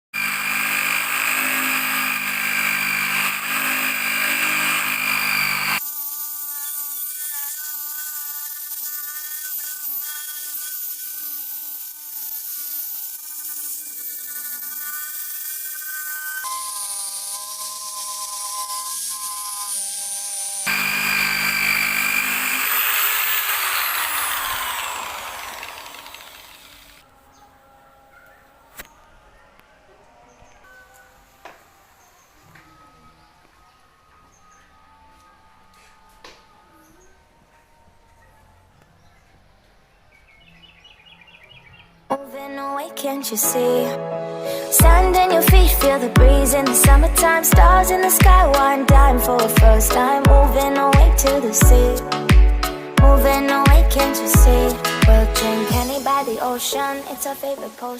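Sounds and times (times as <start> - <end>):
sander scraping paint: 0.2 - 27.0, 44.6 - 57.9
drill motor whine: 0.2 - 27.1.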